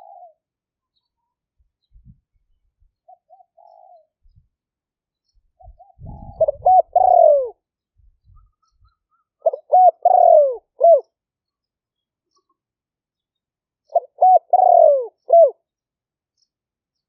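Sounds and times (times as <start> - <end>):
dove cooing: 0.0 - 0.4, 3.1 - 4.2, 5.6 - 7.6, 8.4 - 11.1, 13.9 - 15.6.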